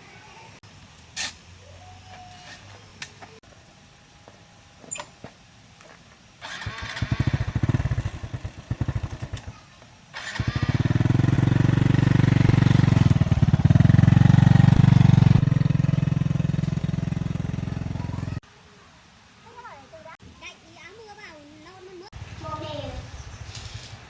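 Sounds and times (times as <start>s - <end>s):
small engine starting and running: 6.4s - 18.4s.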